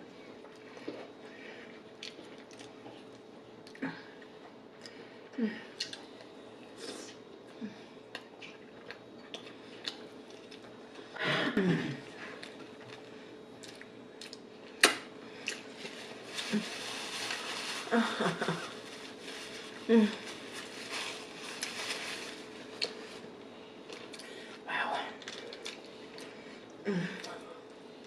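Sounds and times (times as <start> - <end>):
food being chewed: 0.4 - 5.0, 5.8 - 6.8, 8.1 - 11.1, 12.3 - 14.5, 15.4 - 16.3, 21.1 - 24.4, 25.2 - 27.4.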